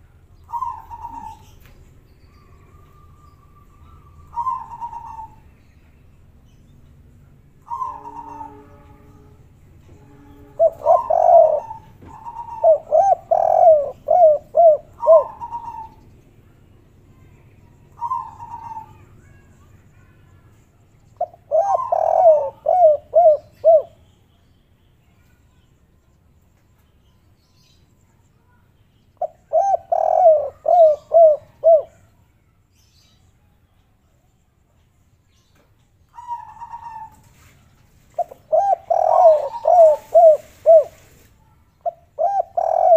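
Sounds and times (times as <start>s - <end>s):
doves cooing: 0.5s - 1.8s, 2.4s - 5.5s, 7.6s - 9.0s, 10.2s - 16.0s, 18.0s - 19.1s, 21.2s - 24.0s, 29.2s - 32.0s, 36.2s - 37.4s, 38.1s - 41.2s, 41.8s - 42.9s.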